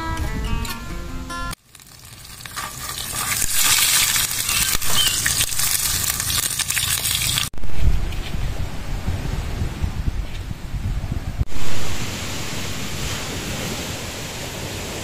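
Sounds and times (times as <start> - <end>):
acoustic guitar music: 0.0 - 1.6
hot dog sizzling in oil: 1.6 - 7.5.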